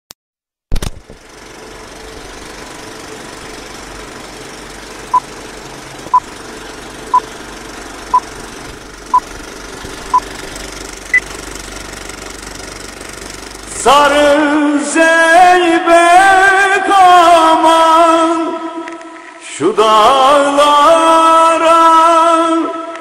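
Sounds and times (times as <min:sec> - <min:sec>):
film projector whirr: 0:00.8 - 0:18.2.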